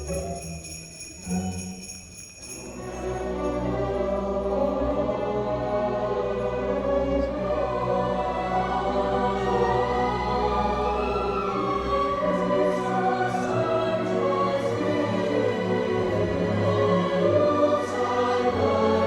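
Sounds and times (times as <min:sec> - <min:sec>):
sleigh bells jingling: 0:00.0 - 0:04.5.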